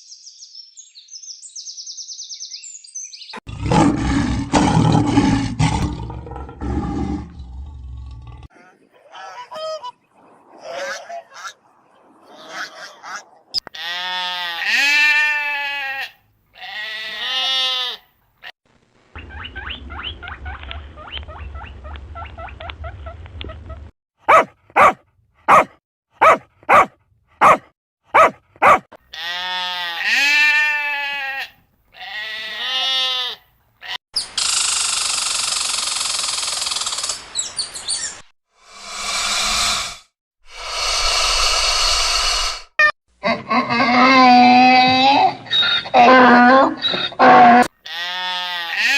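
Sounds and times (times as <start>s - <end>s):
rapid pulsing animal call: 38.9s - 42.8s.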